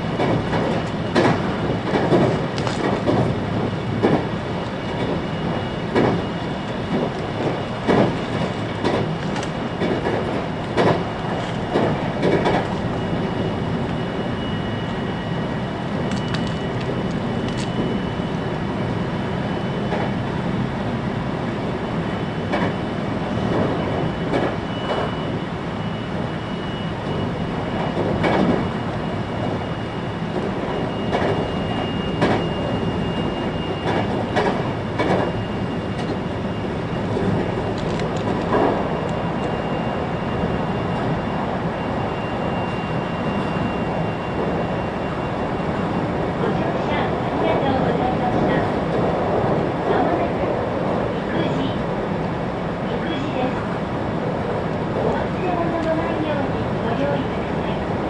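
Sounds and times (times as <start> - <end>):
train wheels rumbling on rail: 0.0 - 58.0
clacks over rail joints: 0.1 - 4.3, 4.9 - 12.8, 22.5 - 22.8, 23.5 - 25.1, 27.9 - 28.7, 31.1 - 31.5, 32.2 - 32.5, 33.8 - 35.4
faint high whine: 12.9 - 19.8.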